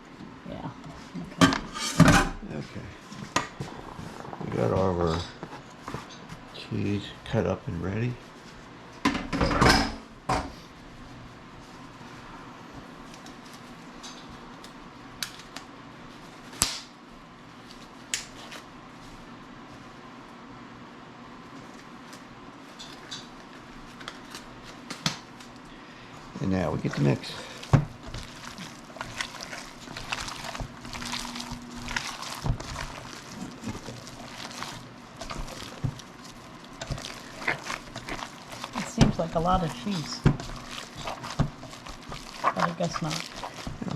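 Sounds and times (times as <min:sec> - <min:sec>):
low background hum: 0:00.0 - 0:43.9
hands squelching meat mixture: 0:25.7 - 0:43.9.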